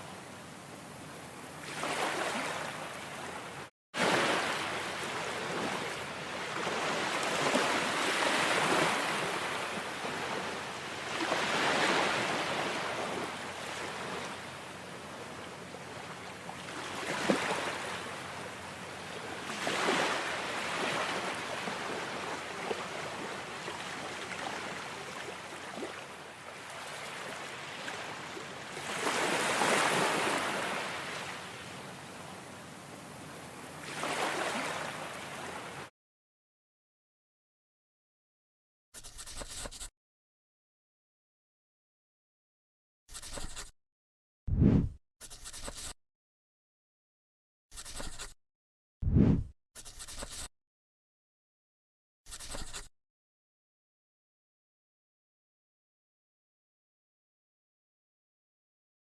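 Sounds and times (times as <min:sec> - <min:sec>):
ocean waves breaking: 0:01.6 - 0:14.6, 0:15.9 - 0:18.6, 0:19.2 - 0:31.7, 0:33.8 - 0:35.9.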